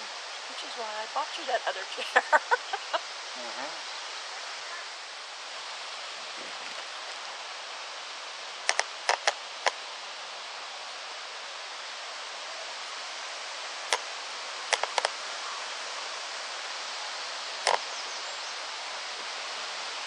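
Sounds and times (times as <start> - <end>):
steady outdoor hiss: 0.0 - 20.0
sharp clicks: 8.7 - 9.8, 14.7 - 15.1, 17.6 - 17.8.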